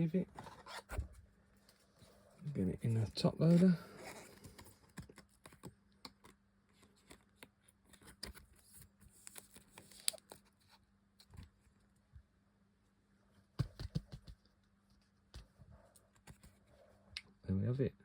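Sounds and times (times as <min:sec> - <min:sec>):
light clicks and rustles of card: 0:02.9 - 0:11.8, 0:13.7 - 0:16.7.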